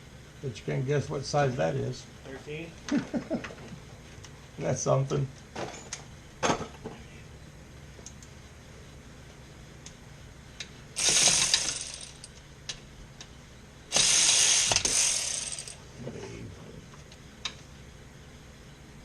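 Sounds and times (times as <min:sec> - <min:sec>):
ratchet wrench clicking: 0:13.9 - 0:15.8.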